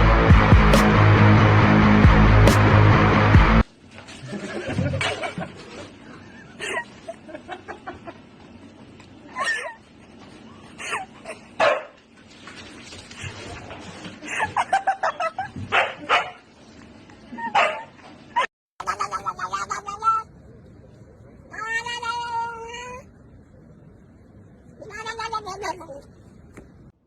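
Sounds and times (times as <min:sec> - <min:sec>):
dog barking and yipping: 0:11.6 - 0:12.0, 0:15.7 - 0:16.4, 0:17.4 - 0:18.5.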